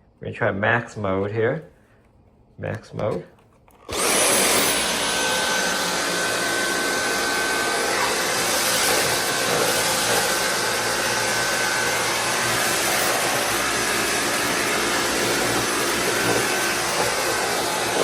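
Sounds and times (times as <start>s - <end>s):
vacuum cleaner motor whine: 3.8s - 18.0s.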